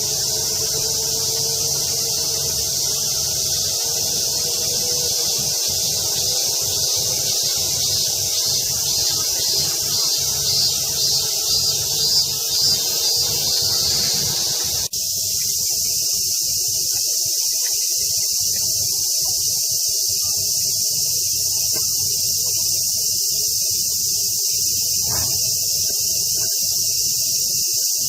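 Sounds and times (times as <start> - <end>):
low outdoor rumble: 0.0 - 14.9
cicadas shrilling: 0.0 - 28.0.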